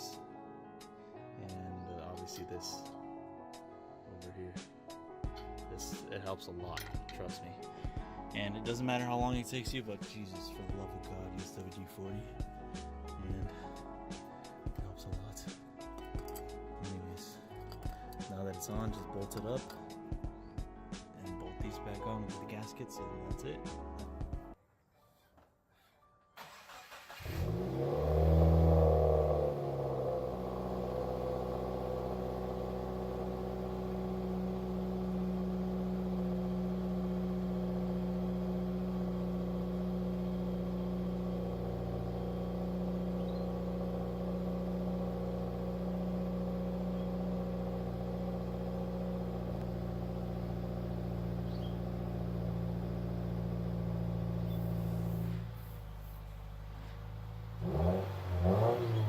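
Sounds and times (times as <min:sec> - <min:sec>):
car engine starting and idling: 0:26.4 - 0:59.0.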